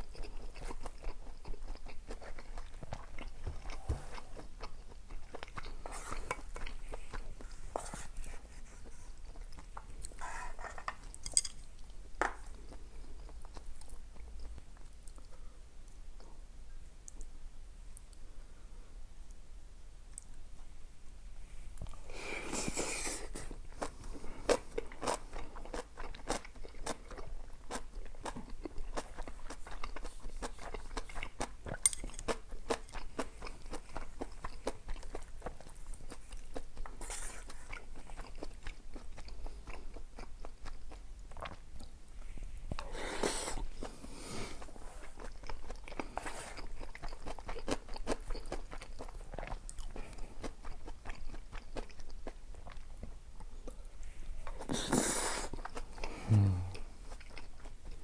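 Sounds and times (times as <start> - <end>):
chewing and crunching food: 0.0 - 16.4, 21.8 - 58.0.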